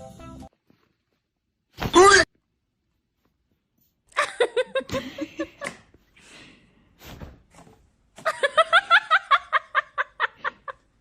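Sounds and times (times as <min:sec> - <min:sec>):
person laughing: 0:04.2 - 0:05.8
breath: 0:06.1 - 0:07.1.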